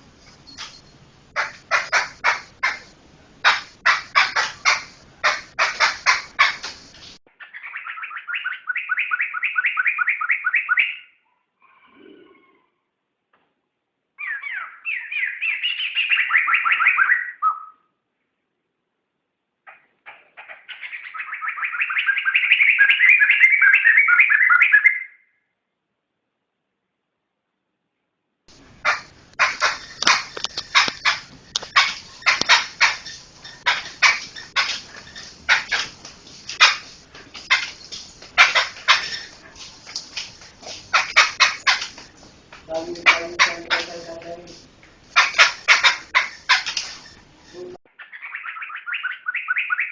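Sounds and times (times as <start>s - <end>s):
bird giving harsh rasping calls: 1.3s - 11.1s, 28.5s - 47.2s
bird singing whistled notes: 7.6s - 11.2s, 14.2s - 17.9s, 20.8s - 25.4s.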